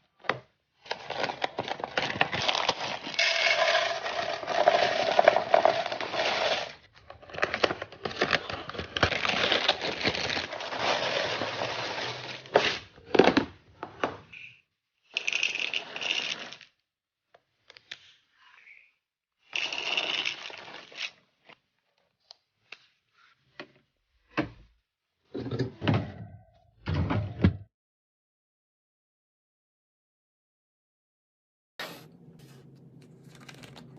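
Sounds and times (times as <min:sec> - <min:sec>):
food packaging rustling: 0:00.8 - 0:13.4, 0:31.8 - 0:33.9
clicks and knocks of containers: 0:32.2 - 0:33.9.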